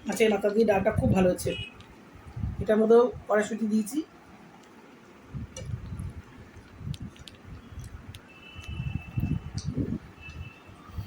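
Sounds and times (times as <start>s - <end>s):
chewing and mouth noises: 5.6s - 10.4s
small clicks: 5.6s - 10.6s.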